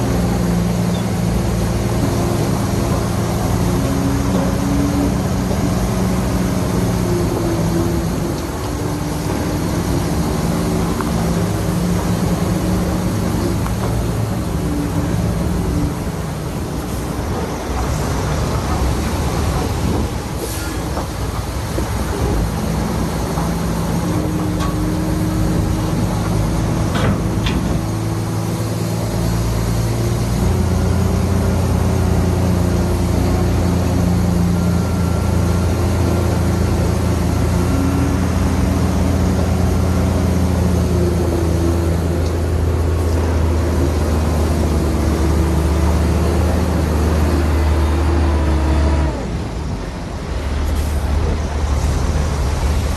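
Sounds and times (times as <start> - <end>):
heavy diesel engine drone: 0.0 - 52.9.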